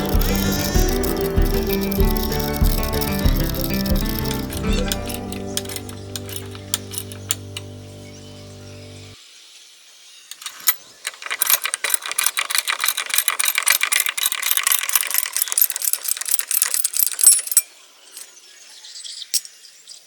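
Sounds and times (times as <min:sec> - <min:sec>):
metallic clicking and rattling: 0:00.0 - 0:07.7, 0:10.3 - 0:17.7.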